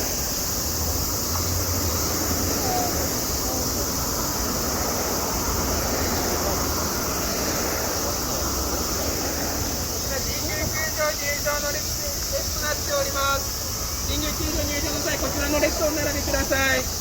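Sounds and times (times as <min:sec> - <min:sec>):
steady high hiss: 0:00.0 - 0:17.0
crowd murmur: 0:01.2 - 0:17.0.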